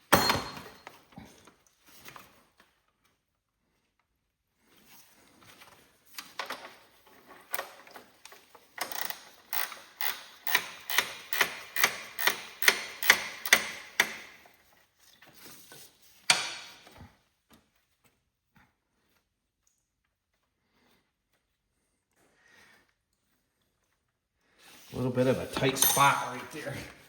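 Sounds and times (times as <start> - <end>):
ratchet wrench clicking: 8.8 - 14.3.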